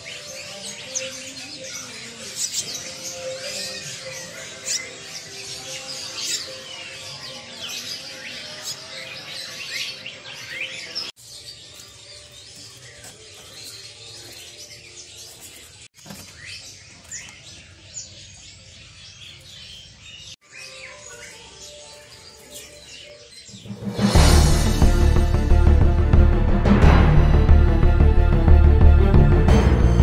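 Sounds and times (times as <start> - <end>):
songbirds chirping and twittering: 0.0 - 26.0.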